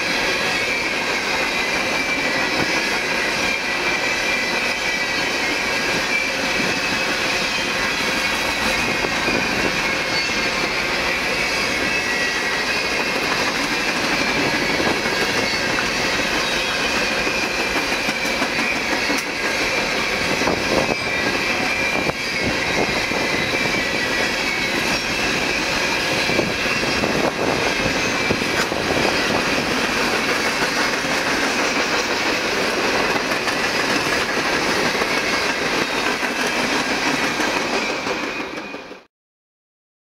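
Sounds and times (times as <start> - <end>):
faint high wheel squeal: 0.0 - 39.0
train wheels rumbling on rail: 0.0 - 39.1.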